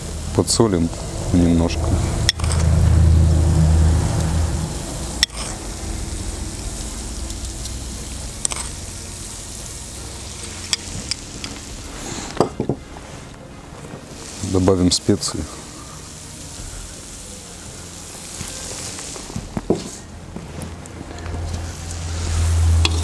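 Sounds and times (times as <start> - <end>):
food sizzling in oil: 0.0 - 12.6, 14.1 - 20.0, 21.7 - 23.0
low rumble: 0.0 - 14.4.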